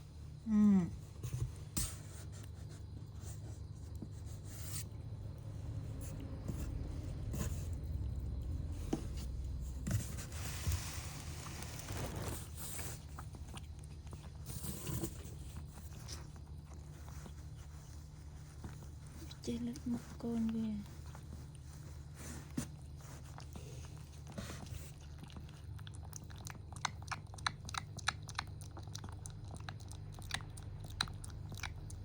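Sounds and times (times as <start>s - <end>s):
steady low hum: 0.0s - 32.0s
scraping and rustling: 8.7s - 25.0s.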